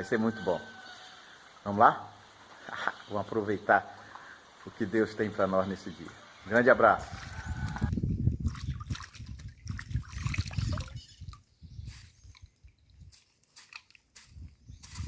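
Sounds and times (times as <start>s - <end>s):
water sloshing and gurgling: 7.0s - 14.1s.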